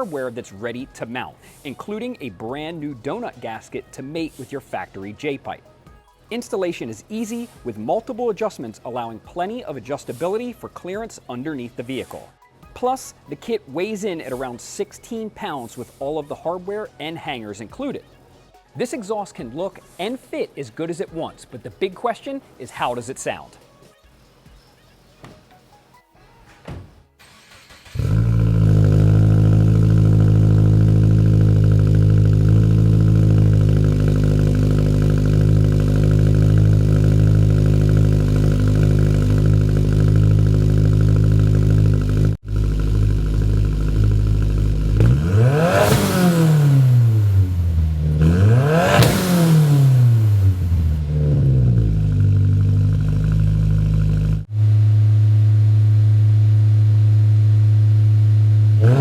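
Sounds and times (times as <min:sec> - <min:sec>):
car engine idling and revving: 0:27.4 - 0:59.0.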